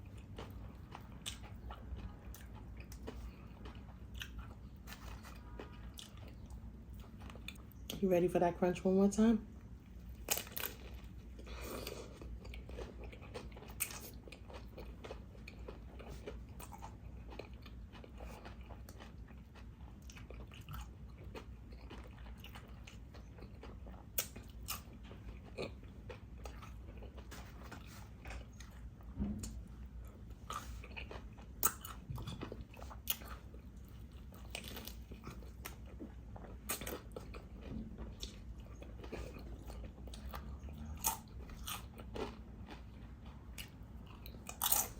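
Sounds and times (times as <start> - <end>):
chewing sandwich: 0.0 - 8.0, 9.5 - 44.9
crunching chips: 10.1 - 28.8.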